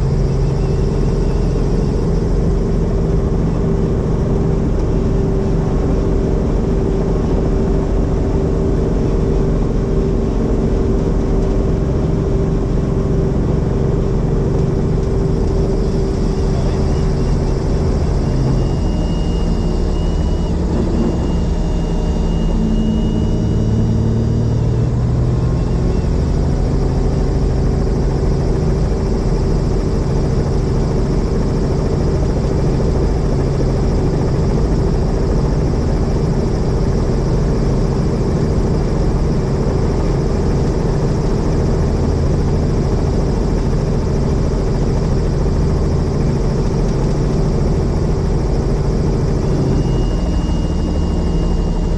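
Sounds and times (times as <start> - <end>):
helicopter engine and rotor: 0.0 - 51.9
faint high tone: 15.8 - 24.8, 49.4 - 51.9.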